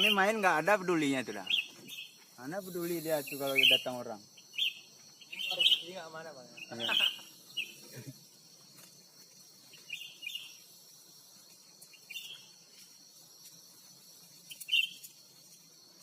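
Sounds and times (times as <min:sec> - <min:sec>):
high insect drone: 0:00.0 - 0:16.0
short bird chirps: 0:14.5 - 0:15.1.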